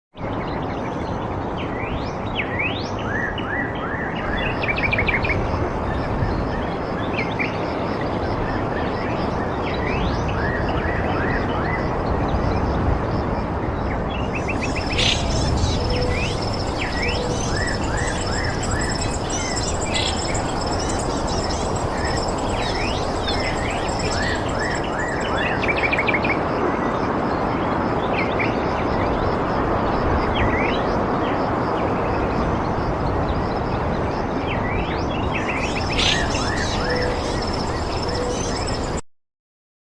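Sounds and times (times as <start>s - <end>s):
steady rushing noise: 12.8s - 27.9s
high thin continuous tone: 14.4s - 25.7s
birds chirping: 14.4s - 26.0s, 35.4s - 39.0s.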